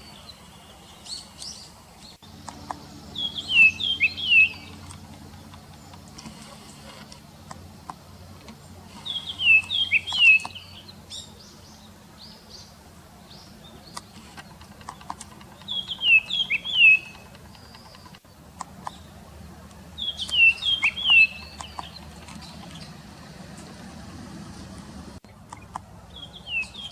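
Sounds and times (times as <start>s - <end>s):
bird whistling song: 3.1s - 4.8s, 9.0s - 12.7s, 15.6s - 18.2s, 20.0s - 23.1s, 25.6s - 26.9s.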